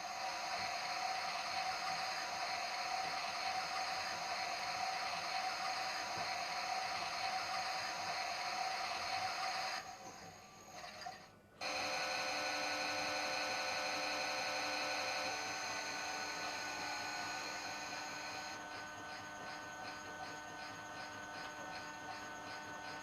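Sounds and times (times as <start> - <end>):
washing machine whirring: 0.0 - 23.0.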